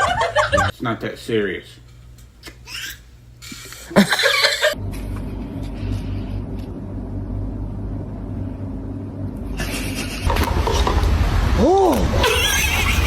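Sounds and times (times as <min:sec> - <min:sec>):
steady low rumble: 0:04.7 - 0:12.4.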